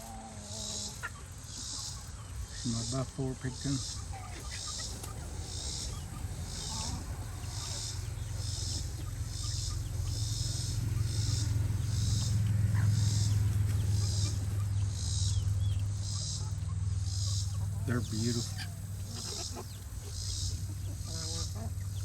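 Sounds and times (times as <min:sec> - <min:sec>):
chickens calling faintly: 0:00.0 - 0:22.0
insects chirping in pulses: 0:00.0 - 0:22.0
steady low hum: 0:00.0 - 0:22.0.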